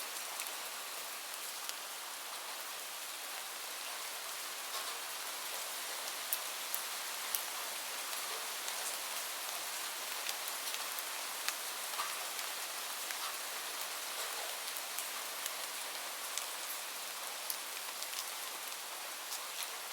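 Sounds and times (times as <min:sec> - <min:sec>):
gentle rain hiss: 0:00.0 - 0:19.9
wood fire crackles: 0:04.7 - 0:19.9.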